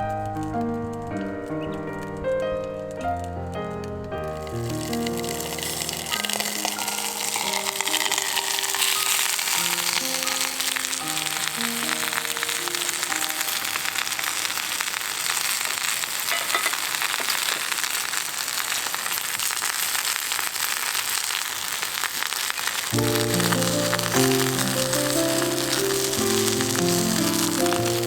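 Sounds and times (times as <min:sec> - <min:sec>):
steady rain: 0:00.0 - 0:28.0
soft background music: 0:23.0 - 0:28.0.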